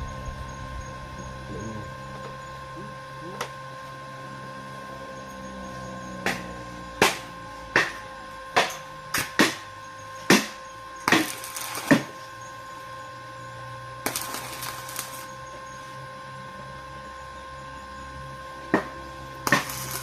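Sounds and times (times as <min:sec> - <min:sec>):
electrical hum: 0:00.0 - 0:20.0
crackling hiss: 0:11.0 - 0:12.2, 0:14.0 - 0:15.3.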